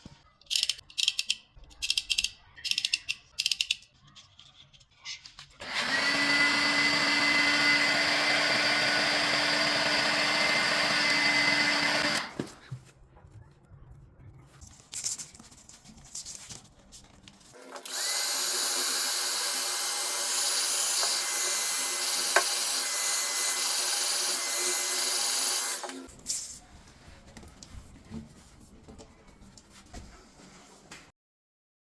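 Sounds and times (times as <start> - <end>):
power tool motor running: 5.6 - 12.3, 17.8 - 26.1.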